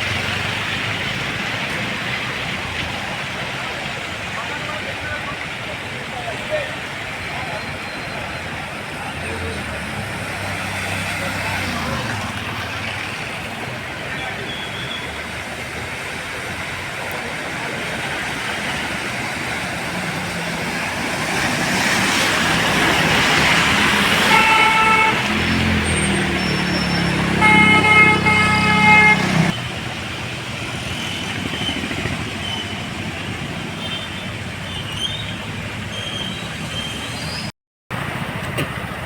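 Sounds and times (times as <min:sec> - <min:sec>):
road traffic: 0:00.0 - 0:39.0
vehicle horn: 0:24.2 - 0:25.4, 0:26.9 - 0:29.5.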